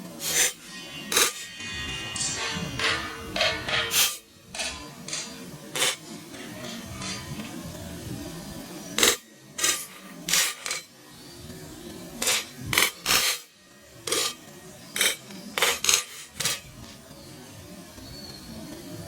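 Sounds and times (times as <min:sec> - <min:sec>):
popcorn popping in metal pan: 0:00.0 - 0:08.1, 0:08.8 - 0:11.0, 0:12.0 - 0:17.0.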